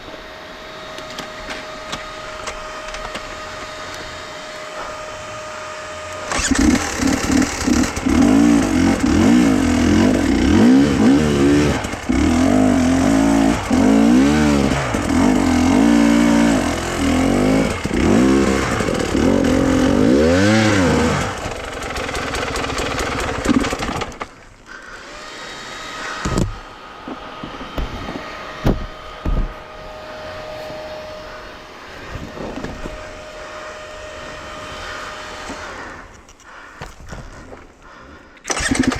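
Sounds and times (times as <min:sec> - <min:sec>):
engine revving: 0:04.8 - 0:24.2, 0:38.5 - 0:38.9.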